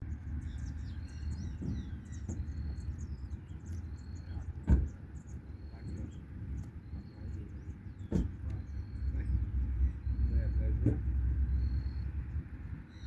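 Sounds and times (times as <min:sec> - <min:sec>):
small birds chirping: 0:00.0 - 0:13.0
steady low rumble: 0:00.0 - 0:13.0
sharp thump: 0:04.6 - 0:05.0.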